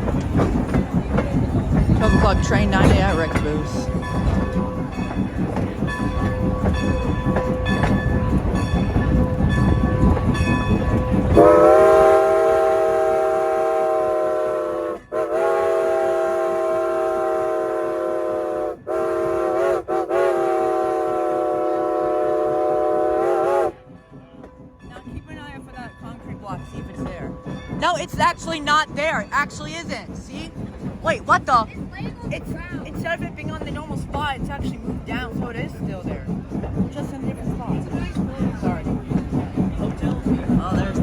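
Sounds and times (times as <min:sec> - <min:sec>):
wheels clacking over rail joints: 0:00.0 - 0:12.5, 0:22.5 - 0:41.0
train rumbling: 0:00.0 - 0:41.0
locomotive chime whistle: 0:02.0 - 0:23.9.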